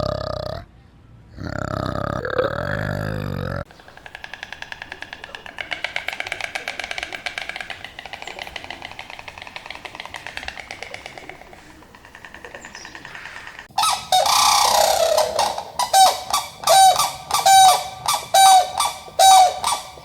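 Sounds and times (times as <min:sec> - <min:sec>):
rattling animal call: 0:03.7 - 0:20.0
goose-like honking: 0:13.8 - 0:20.0.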